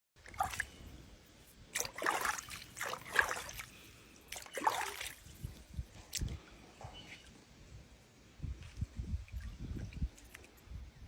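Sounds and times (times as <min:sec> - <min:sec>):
water splashing in a tub: 0:00.2 - 0:00.9, 0:01.7 - 0:06.4.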